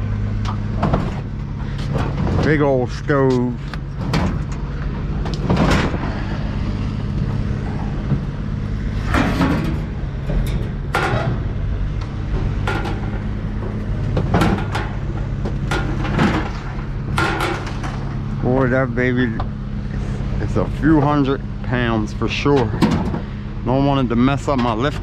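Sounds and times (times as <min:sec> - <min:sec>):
vehicle engine running: 0:00.0 - 0:25.0
metal clanks and knocks: 0:00.4 - 0:06.3, 0:07.2 - 0:19.5, 0:22.5 - 0:23.3.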